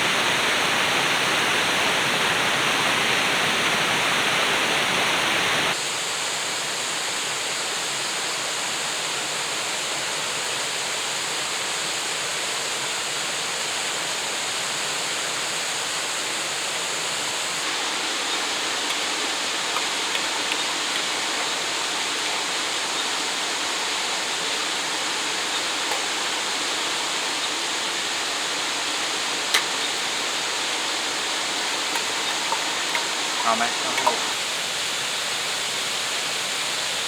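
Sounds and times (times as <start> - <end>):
waterfall rushing: 0.0 - 5.8, 17.0 - 37.0.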